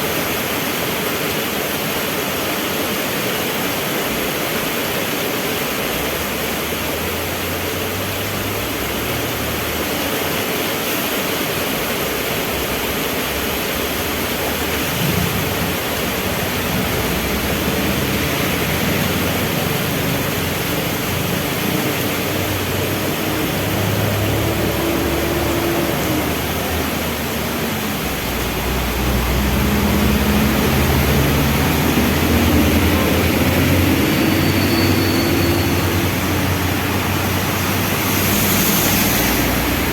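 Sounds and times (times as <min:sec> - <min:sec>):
heavy rain falling: 0:00.0 - 0:39.9
vehicle engines running: 0:11.4 - 0:39.9
deep engine rumble: 0:13.3 - 0:34.4.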